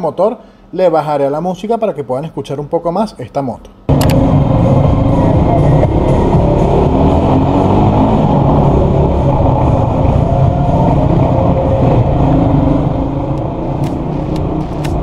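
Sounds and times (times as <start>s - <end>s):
motorcycle engine revving: 3.9s - 15.0s.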